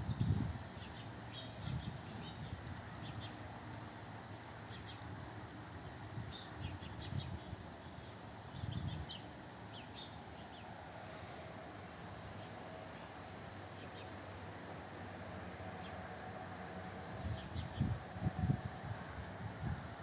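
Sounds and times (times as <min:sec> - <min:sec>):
songbirds chirping: 0:00.1 - 0:18.1.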